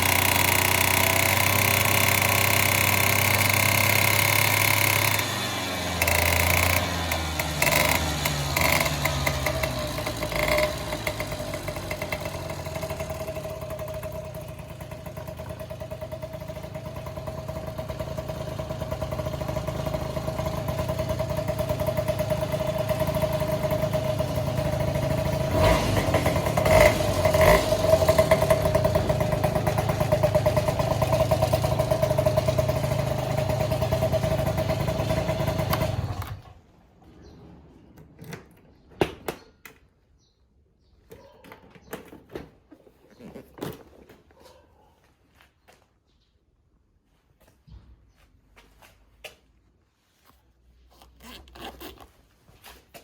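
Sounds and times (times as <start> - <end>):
scooter engine running: 0.0 - 37.2.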